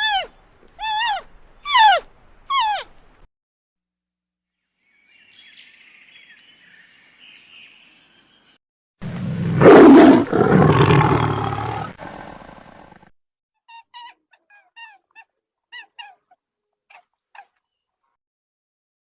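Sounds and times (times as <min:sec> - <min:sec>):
large animal roaring: 0:09.1 - 0:12.9.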